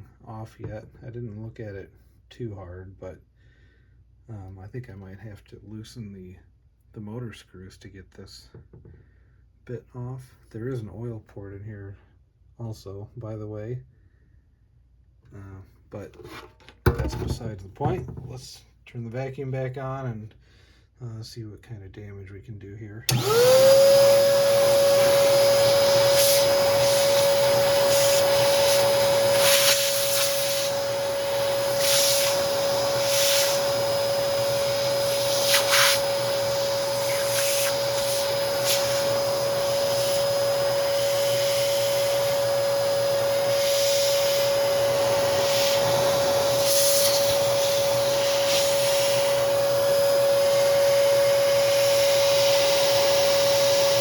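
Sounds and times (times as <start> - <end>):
vacuum cleaner motor whine: 23.1 - 54.0
vacuum hissing surges: 24.4 - 54.0.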